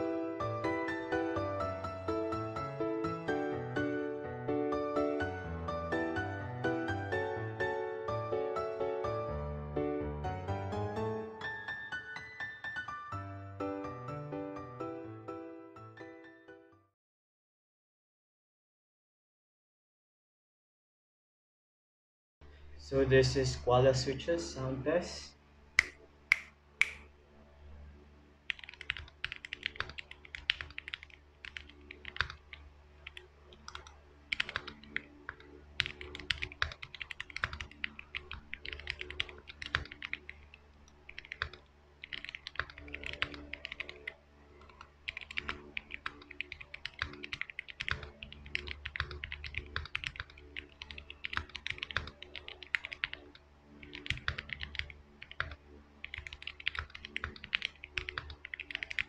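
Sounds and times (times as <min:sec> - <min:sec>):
mechanical keyboard typing: 0:28.5 - 0:59.0.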